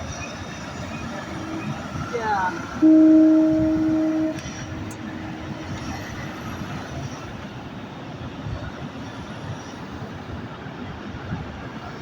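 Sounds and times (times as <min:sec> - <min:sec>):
truck engine rumble: 0:00.0 - 0:09.2
road noise: 0:00.0 - 0:12.0.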